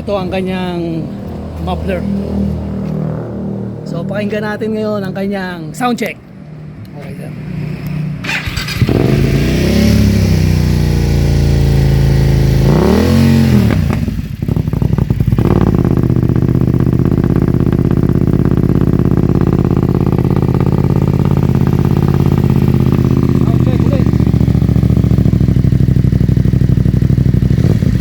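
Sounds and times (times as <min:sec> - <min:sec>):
motorcycle engine revving and idling: 0:07.4 - 0:28.0.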